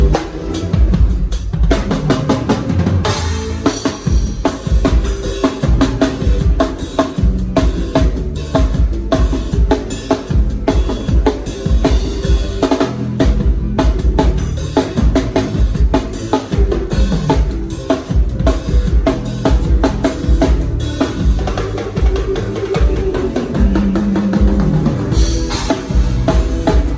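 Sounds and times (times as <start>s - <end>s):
band playing: 0.0s - 26.9s
bass drum: 0.0s - 26.9s.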